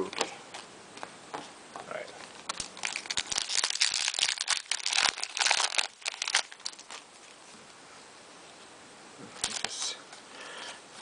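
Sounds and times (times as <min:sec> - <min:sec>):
wrapper tearing and crinkling: 0:02.4 - 0:07.4, 0:09.4 - 0:09.7.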